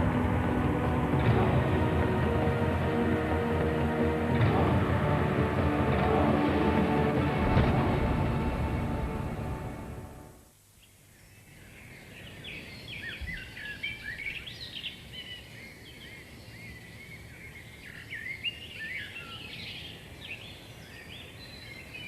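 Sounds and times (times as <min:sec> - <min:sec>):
songbirds singing and chirping: 0:10.8 - 0:22.0.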